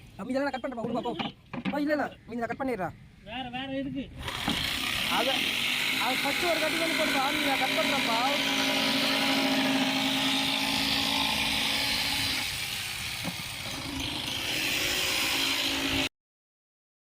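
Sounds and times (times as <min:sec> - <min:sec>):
jigsaw sawing plywood: 0:04.2 - 0:16.1.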